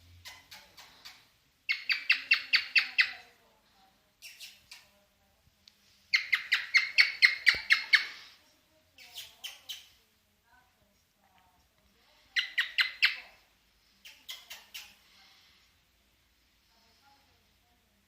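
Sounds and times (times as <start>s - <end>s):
cockatiel chirping song: 0.2s - 3.2s, 4.2s - 4.9s, 6.1s - 8.1s, 9.0s - 10.0s, 12.4s - 13.3s.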